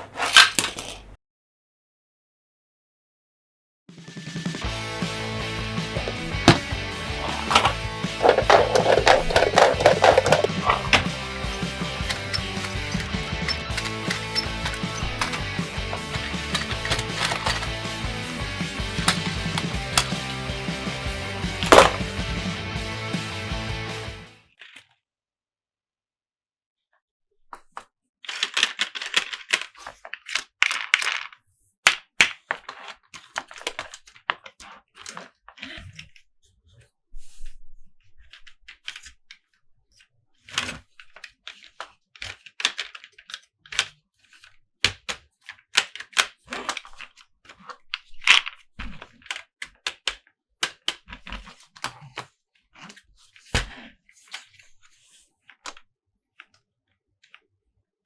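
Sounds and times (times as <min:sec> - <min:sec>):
packaging scratching and rustling: 0:00.0 - 0:01.2, 0:06.0 - 0:18.0, 0:19.0 - 0:20.3, 0:21.6 - 0:22.1
plastic toys clicking and tapping: 0:00.0 - 0:01.2, 0:06.0 - 0:20.8, 0:21.5 - 0:22.2, 0:27.6 - 0:35.7, 0:40.4 - 0:53.7.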